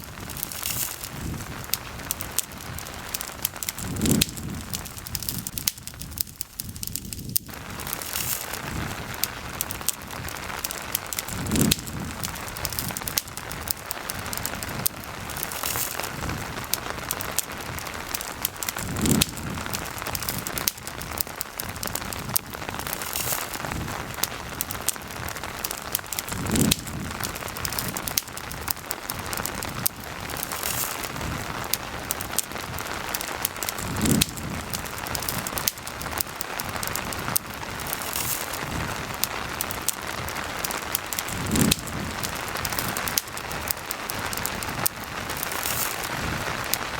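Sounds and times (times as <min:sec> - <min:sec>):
campfire pops and crackles: 0:00.0 - 0:46.9
steady rain falling: 0:00.0 - 0:46.9.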